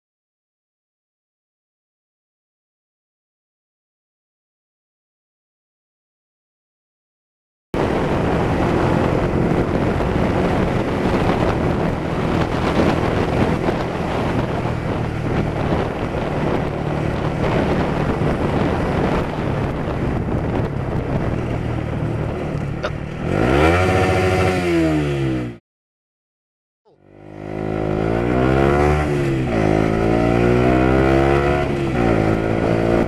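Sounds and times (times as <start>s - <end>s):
road noise: 7.8s - 25.6s, 26.9s - 33.0s
vehicle engine revving: 7.8s - 25.6s, 26.9s - 33.0s
wind noise: 7.8s - 25.6s, 27.6s - 33.0s.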